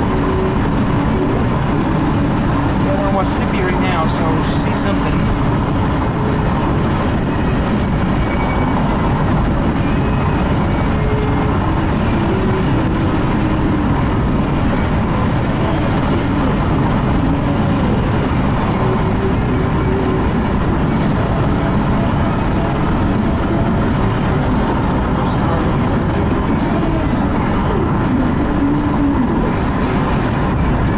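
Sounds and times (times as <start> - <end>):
road and engine noise in car cabin: 0.0 - 30.9.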